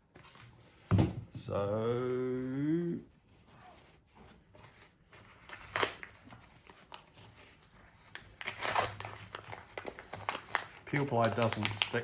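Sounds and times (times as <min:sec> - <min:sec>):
peel ply crackling and tearing: 0:05.4 - 0:12.0.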